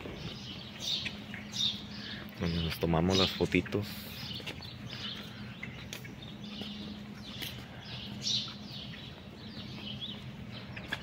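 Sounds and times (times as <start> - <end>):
small birds chirping: 0.0 - 11.0
steady low hum: 0.0 - 11.0.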